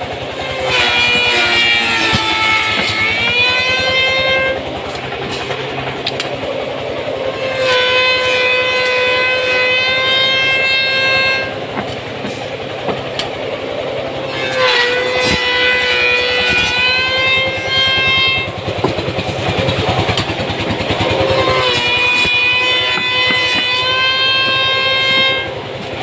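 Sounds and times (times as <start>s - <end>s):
woodworking machine whining: 0.0s - 26.0s
machine knocks: 1.0s - 4.2s, 11.7s - 13.4s, 21.6s - 25.4s.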